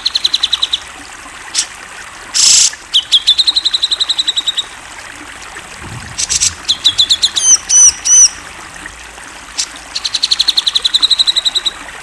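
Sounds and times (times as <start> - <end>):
bird singing: 0.0 - 1.0.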